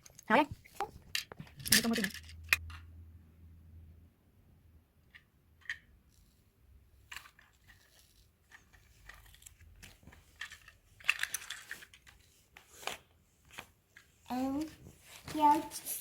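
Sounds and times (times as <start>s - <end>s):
plastic bricks clicking together: 1.0s - 2.8s, 7.1s - 12.1s.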